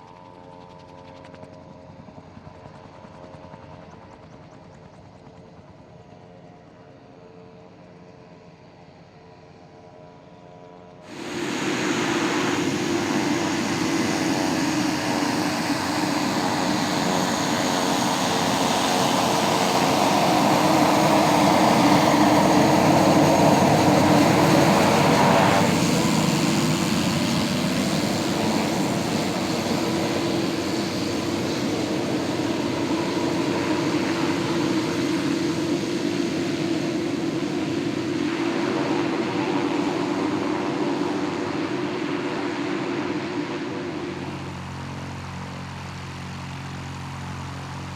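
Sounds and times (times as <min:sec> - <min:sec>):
propeller aircraft engine: 0:00.0 - 0:47.9.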